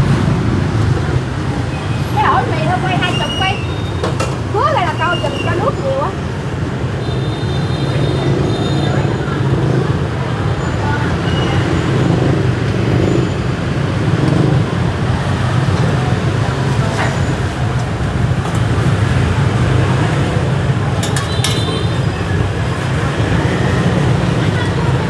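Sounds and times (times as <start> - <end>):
street traffic: 0.0 - 25.0
short sharp clinks: 21.0 - 22.0.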